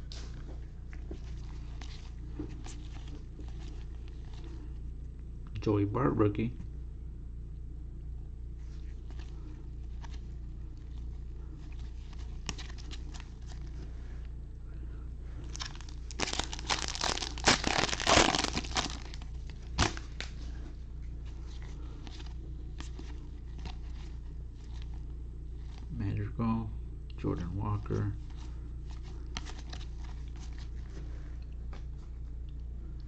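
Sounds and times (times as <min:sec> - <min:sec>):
wrapper torn and crumpled: 0:11.8 - 0:13.7, 0:15.4 - 0:20.3
cards ticking and rustling: 0:15.5 - 0:20.4, 0:28.2 - 0:30.7.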